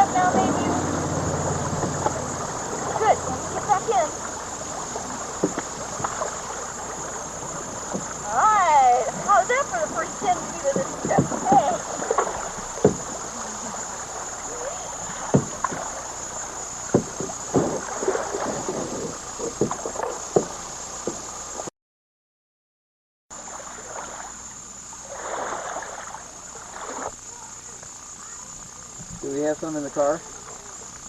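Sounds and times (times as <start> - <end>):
paddles knocking on boat hull: 0.0 - 14.4, 15.0 - 21.3
paddles splashing in water: 0.0 - 21.7, 23.4 - 31.0
rushing water: 0.0 - 21.7, 23.4 - 27.3
wind: 0.0 - 21.7, 23.3 - 31.0.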